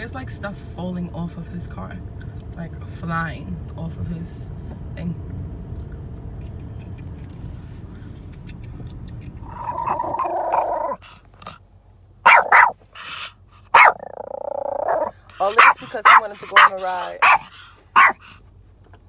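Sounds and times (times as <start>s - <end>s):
car cabin road rumble: 0.0s - 19.0s
dog growling: 9.4s - 11.6s, 12.3s - 18.4s
dog barking: 9.6s - 11.0s, 12.2s - 18.4s.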